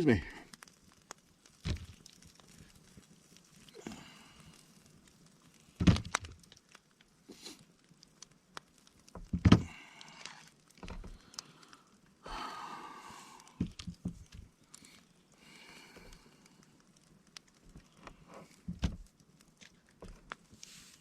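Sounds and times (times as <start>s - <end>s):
clicks and rustling: 5.8s - 7.1s, 13.5s - 15.1s, 16.0s - 21.0s.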